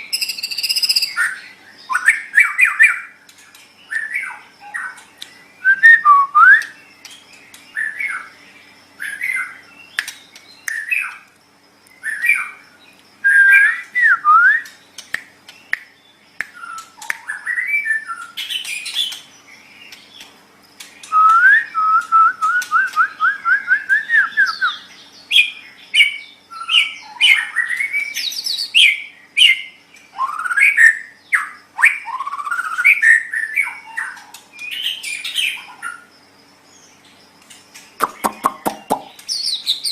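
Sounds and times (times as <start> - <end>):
bird singing whistled phrases: 0.0 - 3.1, 5.6 - 6.8, 13.2 - 14.8, 21.0 - 35.7.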